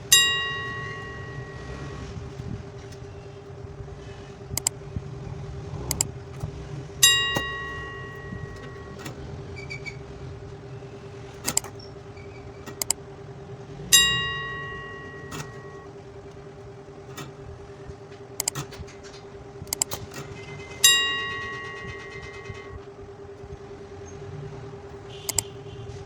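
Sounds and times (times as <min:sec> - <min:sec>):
loud ringing metallic strikes: 0:00.0 - 0:02.2
electrical hum: 0:00.0 - 0:26.0
metal clinks and clicks: 0:05.9 - 0:09.1.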